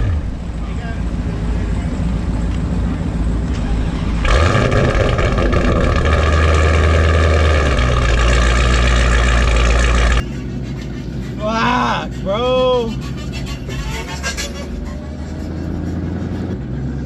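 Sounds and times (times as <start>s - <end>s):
drag car engine at full throttle: 0.0s - 11.4s.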